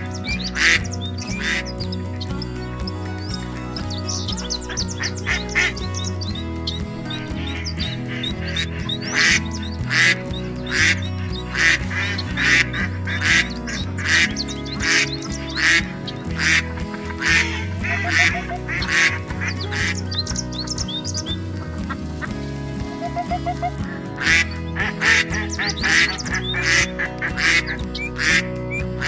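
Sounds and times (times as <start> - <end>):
duck quacking: 0.0 - 1.8, 4.7 - 6.0, 7.4 - 20.0, 23.0 - 29.0
background music: 0.0 - 29.0.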